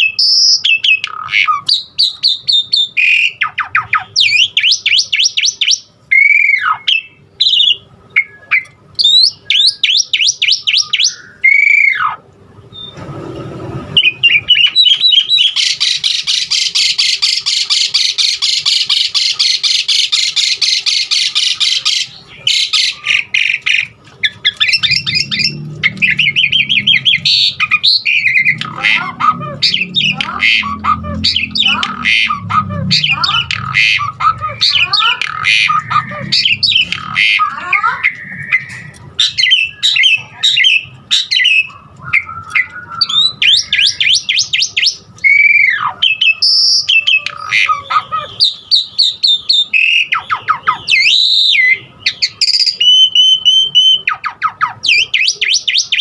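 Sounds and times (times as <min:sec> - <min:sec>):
starling singing: 0:00.0 - 0:56.0
harsh chattering: 0:13.6 - 0:56.0.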